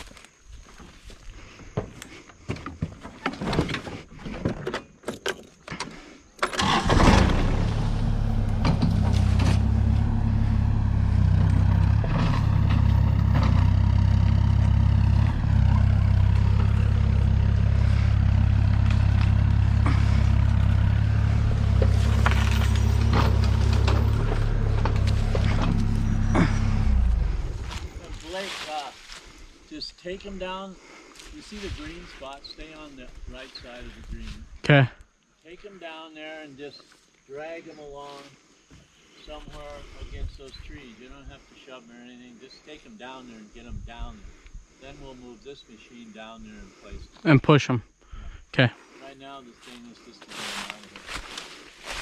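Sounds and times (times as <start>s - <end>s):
tractor engine running: 6.4s - 28.6s.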